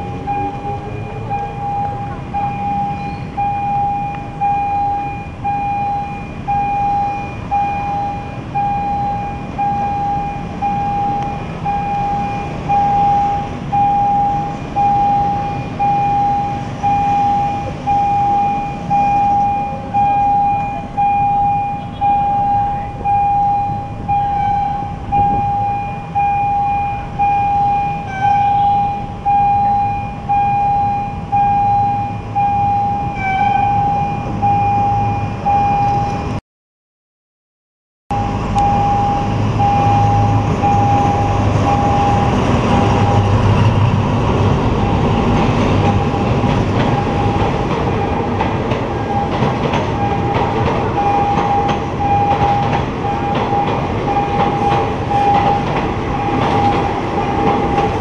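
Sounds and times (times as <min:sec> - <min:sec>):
level crossing signal beeping: 0:00.0 - 0:36.4, 0:38.1 - 0:43.8, 0:44.8 - 0:58.0
locomotive engine rumbling: 0:00.0 - 0:36.4, 0:38.1 - 0:58.0
wheels clattering over rail joints: 0:40.4 - 0:58.0.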